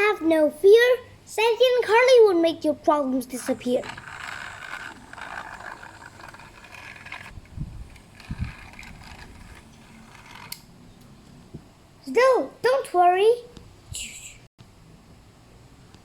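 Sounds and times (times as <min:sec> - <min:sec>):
toy motor and gears whirring: 0:03.2 - 0:10.7.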